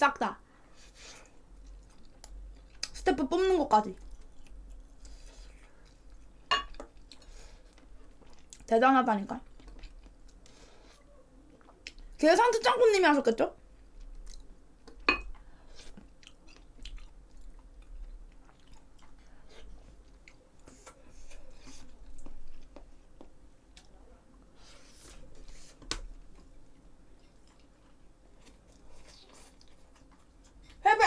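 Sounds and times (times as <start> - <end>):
person chewing: 1.2 - 3.0, 4.0 - 8.7, 9.4 - 12.1, 13.8 - 24.0, 26.7 - 30.8.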